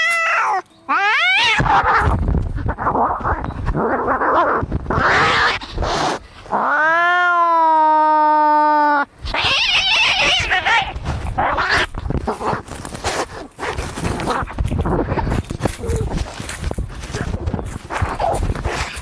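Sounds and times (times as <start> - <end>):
cat yowling: 0.0 - 3.4, 6.6 - 11.9
cats hissing and spitting: 1.3 - 6.7, 9.2 - 19.0.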